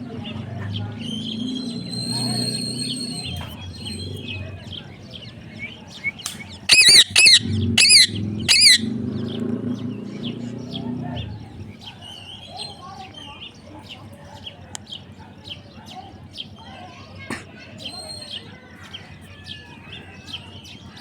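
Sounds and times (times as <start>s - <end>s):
parrot screeching: 6.7s - 8.9s
soft chirps: 6.7s - 8.9s.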